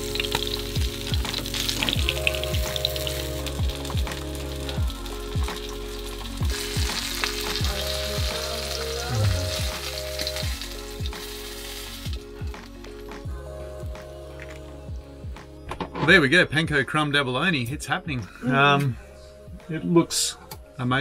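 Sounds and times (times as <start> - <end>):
food sizzling in oil: 0.0 - 13.2
background music with steady beat: 0.0 - 21.0.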